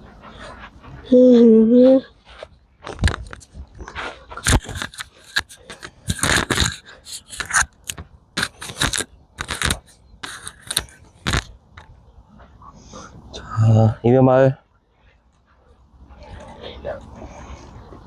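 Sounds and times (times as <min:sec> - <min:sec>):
rustling and scraping handling noises: 0:00.0 - 0:13.5.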